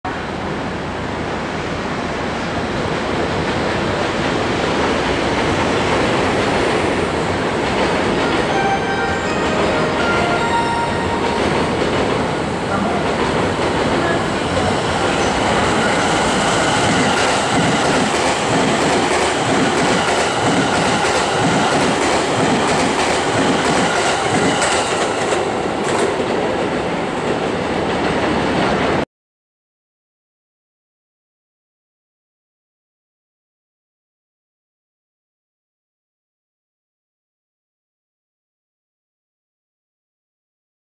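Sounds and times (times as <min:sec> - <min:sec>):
train rolling rumble: 0:00.1 - 0:29.0.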